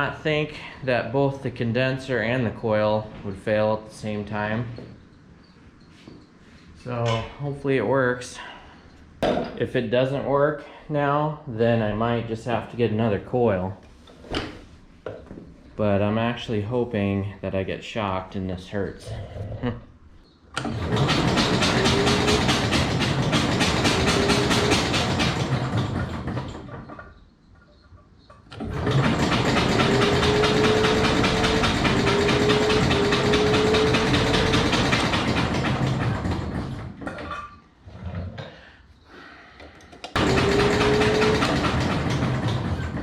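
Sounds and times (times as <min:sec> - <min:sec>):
electric starter cranking engine: 0:20.6 - 0:26.9, 0:28.5 - 0:37.1, 0:40.1 - 0:43.0.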